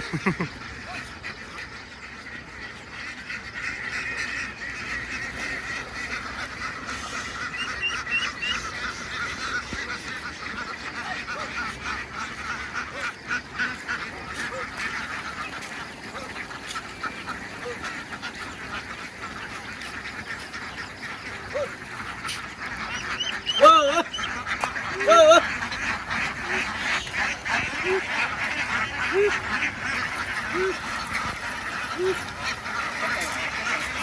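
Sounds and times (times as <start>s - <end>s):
flock of ducks quacking: 0.0s - 34.0s.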